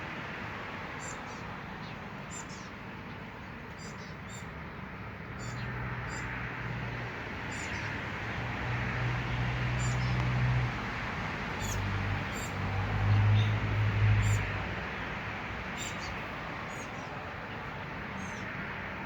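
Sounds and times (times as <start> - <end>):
small birds chirping: 1.0 - 4.6, 5.4 - 6.3, 7.5 - 7.9, 9.8 - 10.2, 11.6 - 12.6, 14.2 - 14.6, 15.7 - 18.5
low engine hum: 2.9 - 18.4.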